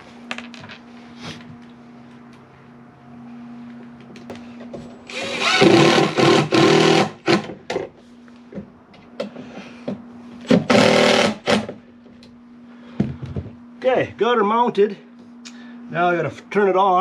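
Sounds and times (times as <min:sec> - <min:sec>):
steady low hum: 0:00.0 - 0:17.0
cordless drill driving screws: 0:05.1 - 0:07.5, 0:10.5 - 0:11.7.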